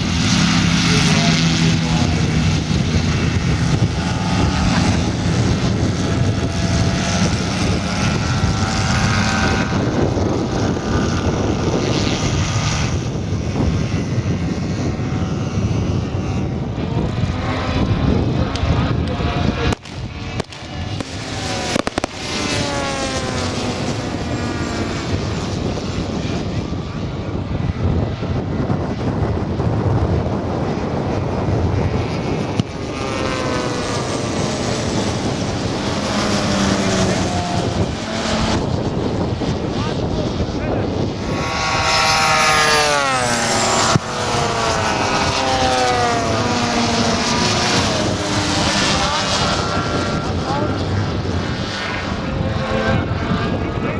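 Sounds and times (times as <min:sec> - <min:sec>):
model airplane engines running: 0:00.0 - 0:53.9
sharp crack: 0:19.7 - 0:22.3
pyrotechnic bangs: 0:19.7 - 0:22.4.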